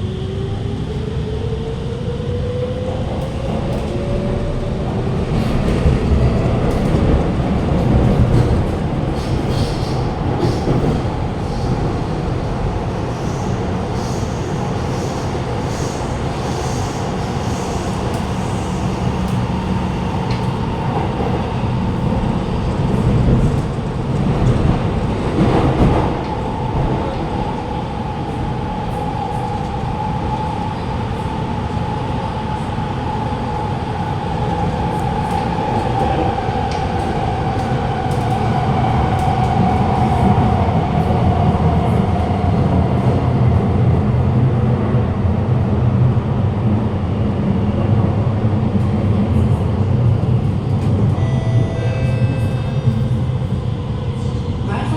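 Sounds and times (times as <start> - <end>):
train wheels rumbling on rail: 0.0 - 54.9
train whine: 50.1 - 54.9.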